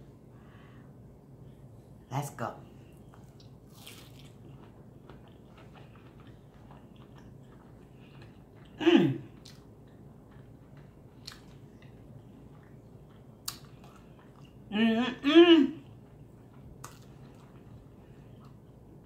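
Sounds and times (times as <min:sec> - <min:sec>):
chewing fried food: 0:03.0 - 0:14.7, 0:15.7 - 0:19.0
person humming: 0:14.7 - 0:15.8.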